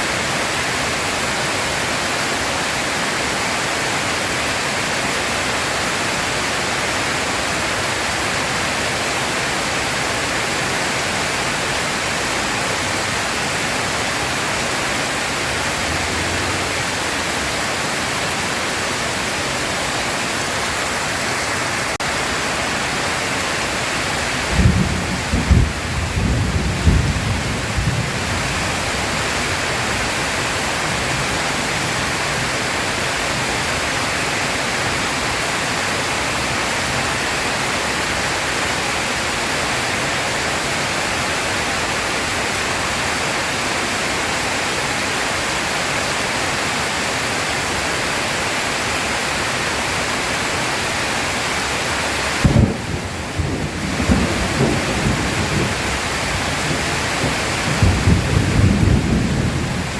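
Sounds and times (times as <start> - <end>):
heavy rain: 0.0 - 59.9
low rolling thunder: 24.4 - 31.9, 52.4 - 59.9.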